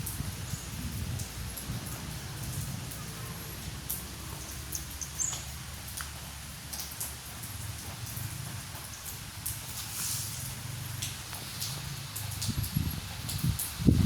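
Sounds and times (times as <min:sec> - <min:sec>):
wind buffeting microphone: 0:00.0 - 0:05.0, 0:12.2 - 0:14.0.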